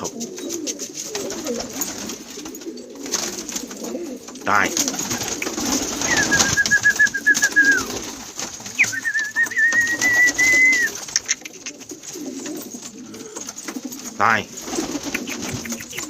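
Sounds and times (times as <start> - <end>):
pigeons cooing: 0.0 - 16.0
light clicks and flutters: 0.2 - 16.0
long warbling whistles: 6.0 - 8.0, 8.8 - 11.0.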